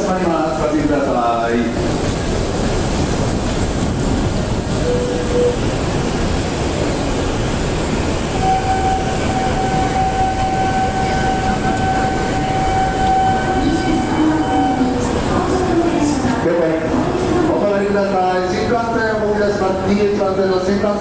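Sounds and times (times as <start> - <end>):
high train whine: 0.0 - 21.0
train rushing noise: 0.0 - 21.0
short beep: 4.8 - 5.6.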